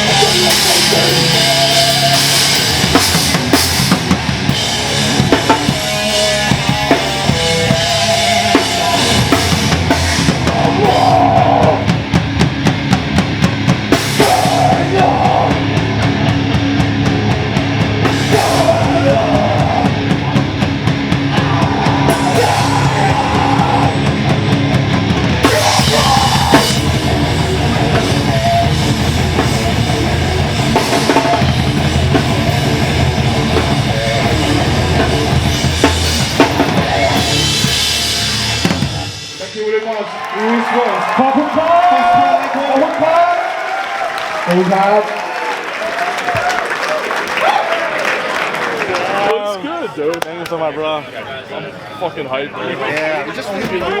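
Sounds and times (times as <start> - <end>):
heavy rock music: 0.0 - 39.9.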